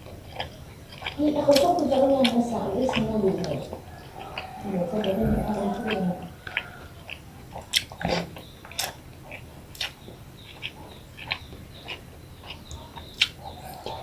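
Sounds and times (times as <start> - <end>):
chewing food: 0.0 - 14.0
wet mouth smacks and clicks: 6.5 - 8.0, 9.7 - 11.4, 13.1 - 13.4.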